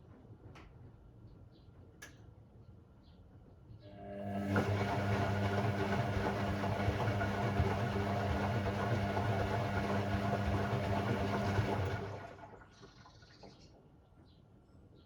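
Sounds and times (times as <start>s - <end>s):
washing machine motor hum: 3.8s - 13.6s.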